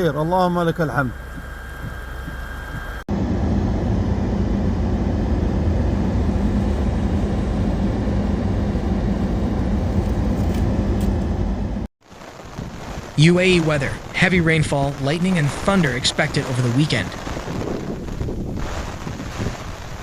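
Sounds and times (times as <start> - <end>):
vehicle running rumble: 0.8 - 11.9.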